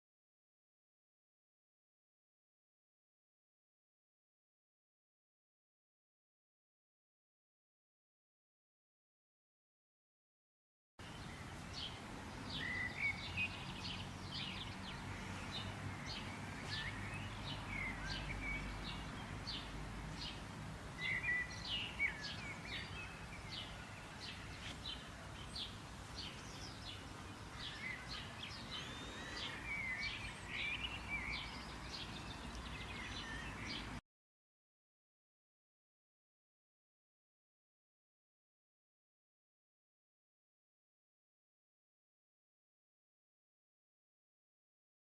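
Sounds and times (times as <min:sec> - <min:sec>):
birds chirping: 0:11.0 - 0:34.0.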